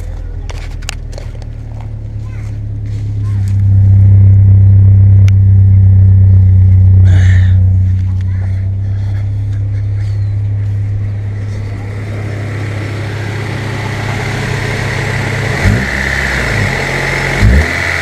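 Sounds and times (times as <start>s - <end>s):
car engine idling: 0.0s - 18.0s
engine revving: 0.0s - 18.0s.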